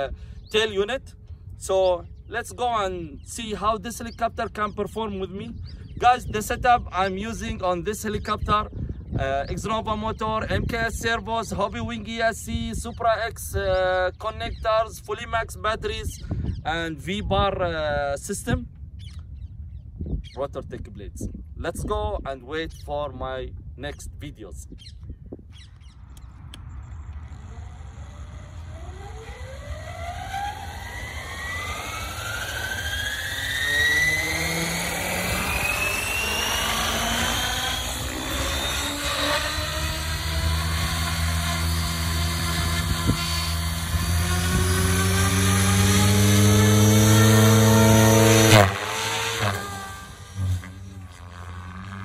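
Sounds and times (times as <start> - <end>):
electric helicopter motor whine: 25.6 - 52.0
rotor and motor hum: 25.6 - 52.0.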